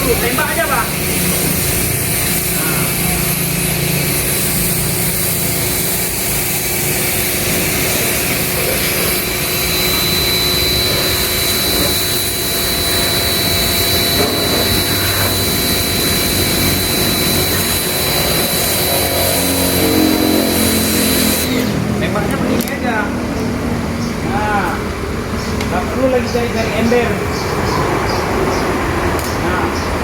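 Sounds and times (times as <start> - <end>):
pump motor running: 0.0 - 22.0
water jet hissing: 0.0 - 22.0
thin high whine: 0.0 - 22.1.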